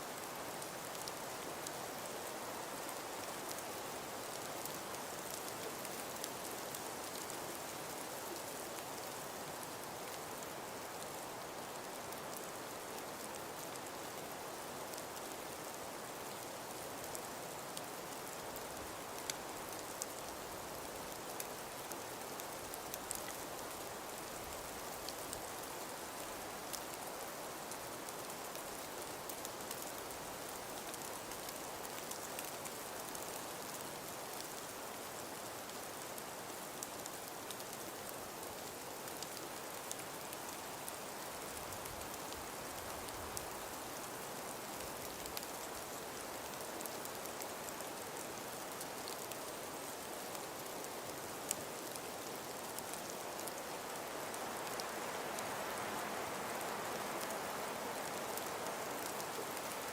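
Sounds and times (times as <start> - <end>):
snow ticking on surfaces: 17.1 - 59.9.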